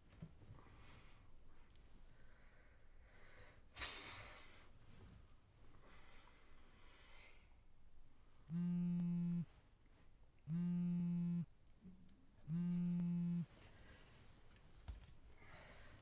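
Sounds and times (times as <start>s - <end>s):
phone vibrating on a table: 8.5s - 9.5s, 10.5s - 11.5s, 12.5s - 13.5s.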